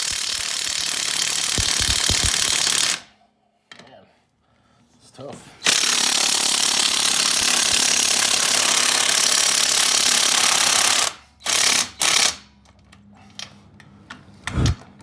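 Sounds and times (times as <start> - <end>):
impact wrench hammering: 0.0 - 3.0, 5.7 - 10.3.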